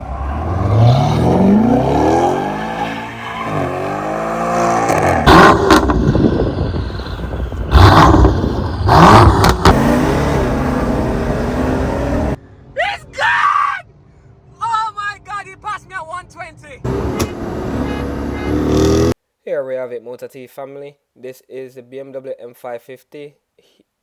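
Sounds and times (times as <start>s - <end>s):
car engine accelerating hard: 0.0s - 6.6s, 7.6s - 12.4s, 16.9s - 19.2s.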